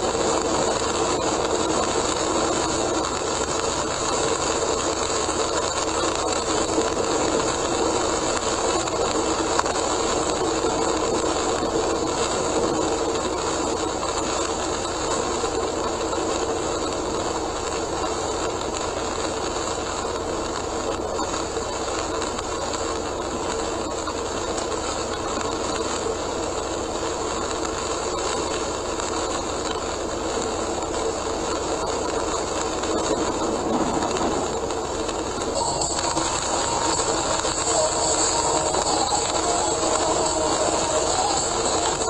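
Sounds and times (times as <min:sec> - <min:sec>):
rain on car: 0:00.0 - 0:42.0
tyres hissing on wet road: 0:20.6 - 0:42.0.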